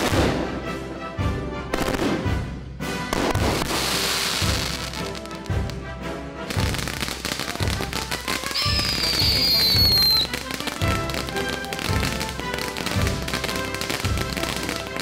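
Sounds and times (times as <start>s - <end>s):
ground fountain firework crackling: 3.1s - 5.8s, 6.4s - 15.0s
high whistle sliding down: 8.5s - 10.2s.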